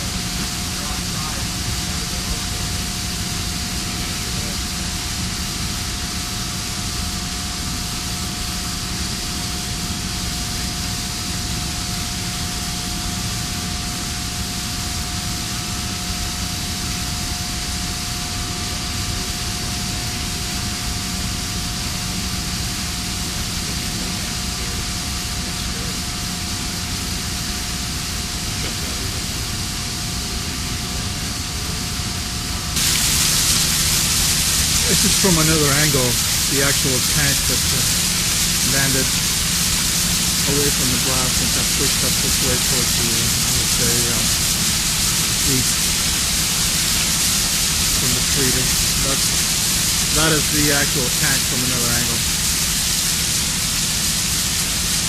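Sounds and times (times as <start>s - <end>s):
rushing hiss: 0.0s - 16.0s, 17.0s - 55.0s
mid-pitched hum: 0.0s - 55.0s
low drone: 32.8s - 45.8s.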